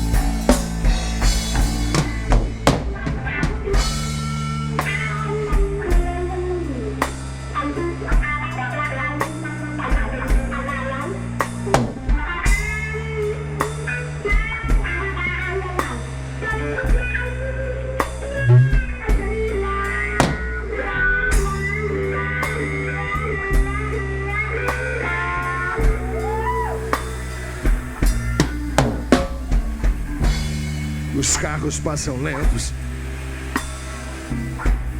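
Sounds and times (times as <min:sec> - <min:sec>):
low sustained bass: 0:00.0 - 0:11.8, 0:12.6 - 0:34.9
drum kit: 0:00.0 - 0:17.4, 0:18.0 - 0:34.9
guitar lead with bent notes: 0:00.0 - 0:34.9.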